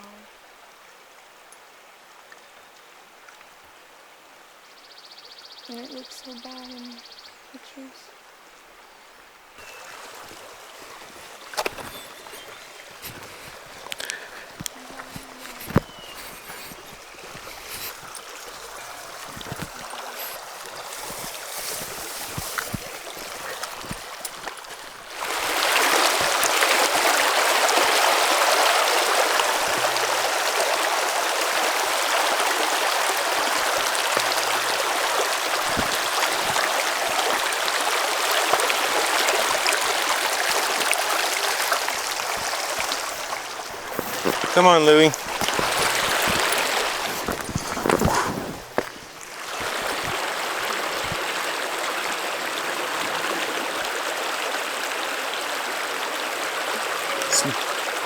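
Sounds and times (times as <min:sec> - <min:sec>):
creek water rushing over rocks: 0:08.7 - 0:58.0
light footsteps: 0:09.6 - 0:26.7, 0:39.5 - 0:51.2.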